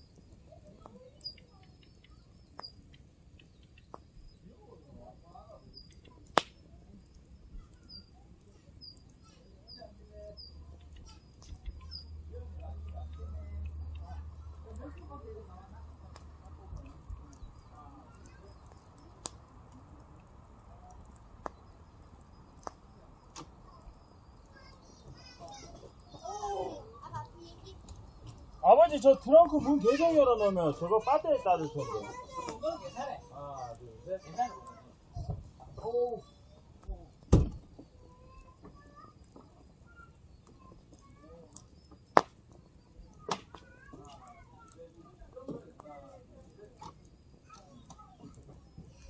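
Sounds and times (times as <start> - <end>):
sharp pops of fire: 0.0 - 29.8, 31.8 - 33.0, 33.7 - 49.0
firewood crackling: 0.0 - 49.0
faint bird calls: 16.8 - 49.0.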